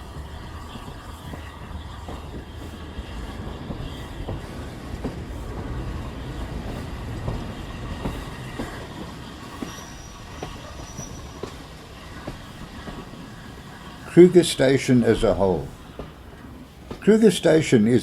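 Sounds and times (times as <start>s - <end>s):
train running on rails: 0.0s - 18.0s
thin high squeal: 9.5s - 11.7s.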